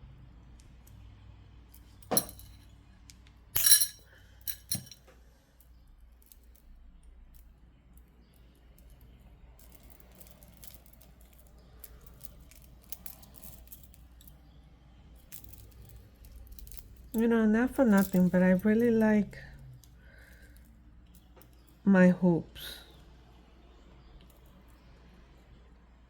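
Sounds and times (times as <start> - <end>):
jewellery clinking: 1.7 - 5.1, 8.7 - 21.8.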